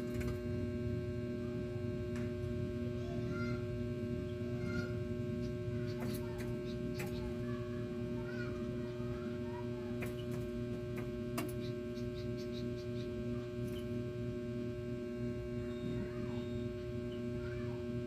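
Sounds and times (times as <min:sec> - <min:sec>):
electrical hum: 0:00.0 - 0:18.0
faint bird chirps: 0:11.5 - 0:14.0, 0:15.6 - 0:17.7.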